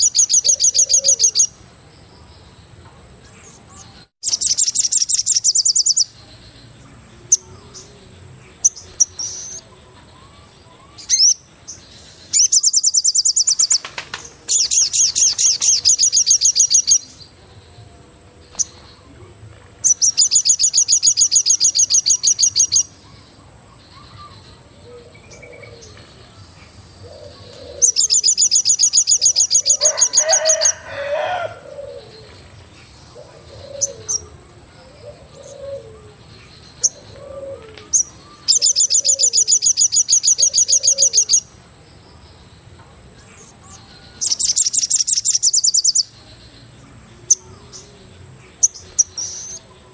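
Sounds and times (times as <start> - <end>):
low cooing bird calls: 0.0 - 1.5, 18.5 - 41.5
rapid high-pitched bird trill: 0.0 - 1.6, 4.2 - 6.5, 10.2 - 11.5, 12.3 - 17.2, 19.8 - 24.4, 27.6 - 31.5, 37.9 - 41.5, 43.8 - 46.1.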